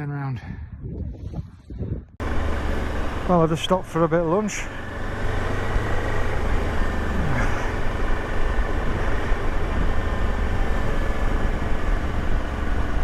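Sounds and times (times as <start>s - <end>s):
wind noise: 0.2s - 2.2s
motorcycle engine rumble: 0.6s - 13.0s.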